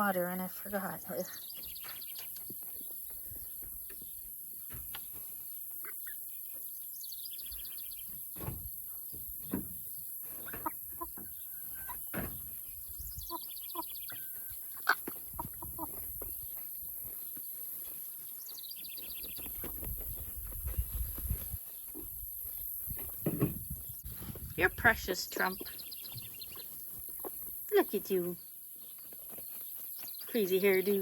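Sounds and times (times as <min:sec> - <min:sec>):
chickens clucking: 0:10.2 - 0:16.5, 0:25.5 - 0:27.7.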